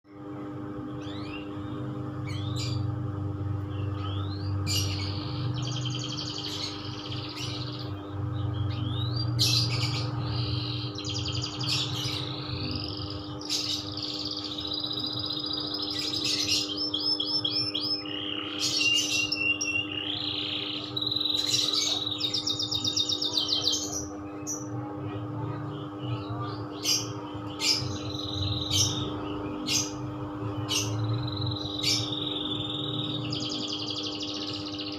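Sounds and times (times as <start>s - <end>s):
steady low hum: 0.1s - 34.9s
canary singing: 0.2s - 34.9s.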